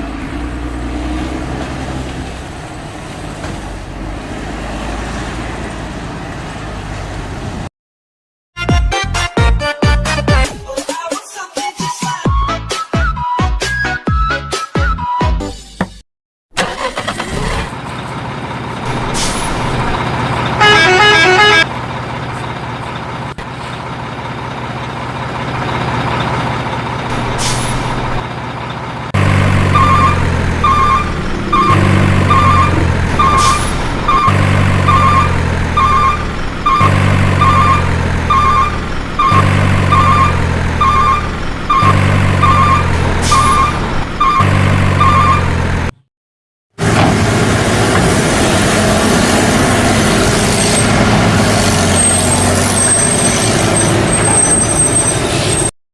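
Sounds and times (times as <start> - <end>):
truck engine running: 16.6 - 46.0, 46.8 - 55.7
horn honking: 20.6 - 21.8, 29.5 - 45.6
short high beeps: 29.8 - 45.5.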